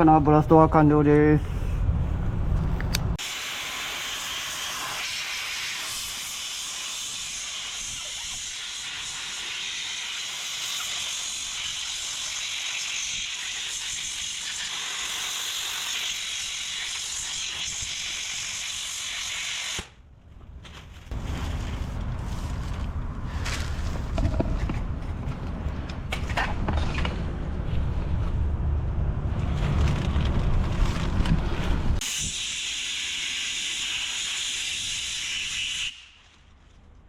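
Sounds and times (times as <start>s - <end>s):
sandblast gun hissing: 3.2s - 20.0s, 32.0s - 36.3s.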